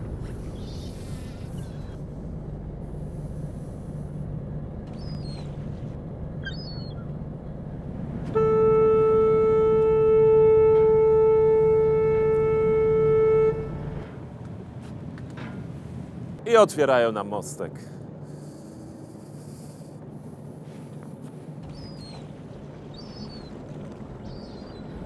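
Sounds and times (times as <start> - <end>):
boat engine humming: 0.0 - 16.4, 17.1 - 25.0
ship horn long blast: 7.8 - 14.6.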